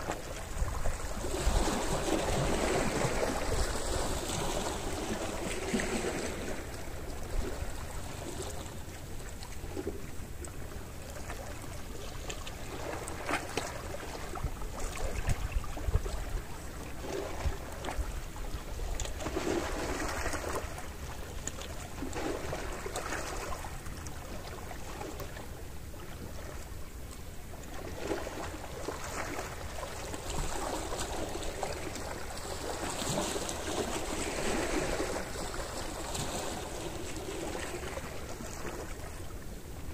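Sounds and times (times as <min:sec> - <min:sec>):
small waves lapping on shore: 0:00.0 - 0:39.9
wind rumble on microphone: 0:00.0 - 0:39.9.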